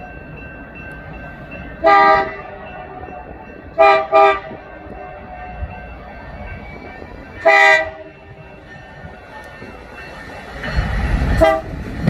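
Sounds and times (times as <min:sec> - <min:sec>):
passing train rumble: 0:00.0 - 0:12.0
locomotive air horn blasts: 0:01.8 - 0:02.5, 0:03.8 - 0:04.6, 0:07.4 - 0:08.1, 0:11.4 - 0:11.8.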